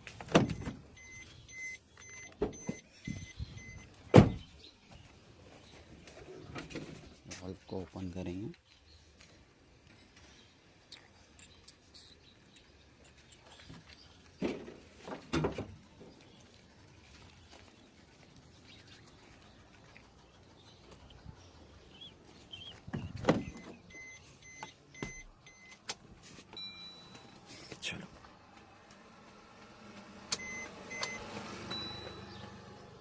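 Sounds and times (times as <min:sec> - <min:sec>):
knocks and clunks of car work: 0:00.0 - 0:04.6, 0:14.4 - 0:15.8, 0:22.8 - 0:26.0.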